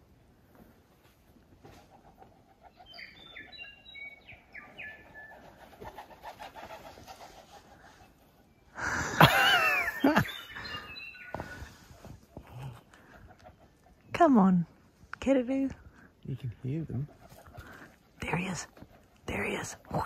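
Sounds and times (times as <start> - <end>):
birds singing: 2.3 - 6.7, 7.5 - 14.8, 15.8 - 20.0.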